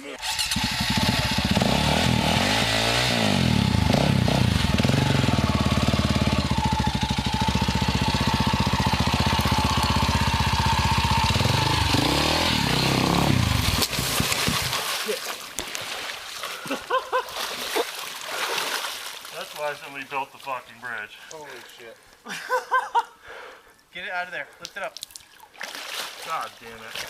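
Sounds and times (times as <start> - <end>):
dirt bike engine revving: 0.1 - 14.8.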